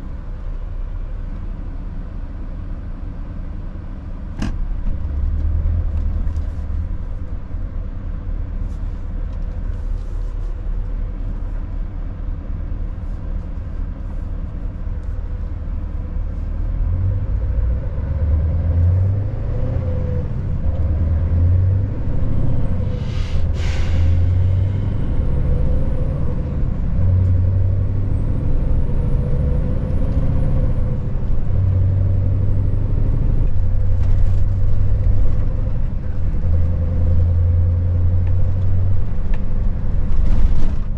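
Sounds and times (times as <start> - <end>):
diesel engine running under load: 0.0 - 40.9
air hiss: 22.9 - 24.4.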